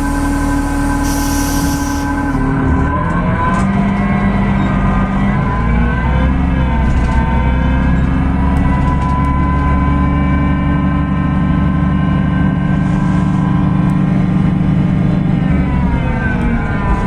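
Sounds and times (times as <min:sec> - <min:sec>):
whining tones: 0:00.0 - 0:04.0
bus diesel engine droning: 0:00.0 - 0:17.0.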